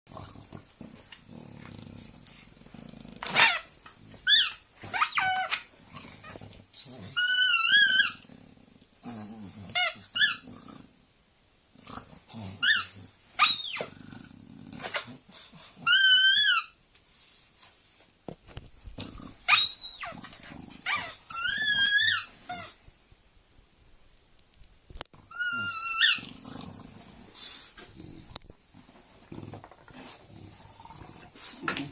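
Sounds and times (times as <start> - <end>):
rubber squeaky ball squealing: 3.3 - 5.6, 7.2 - 8.2, 9.8 - 10.4, 12.6 - 13.9, 15.8 - 16.8, 19.5 - 20.2, 20.9 - 22.7, 25.2 - 26.3.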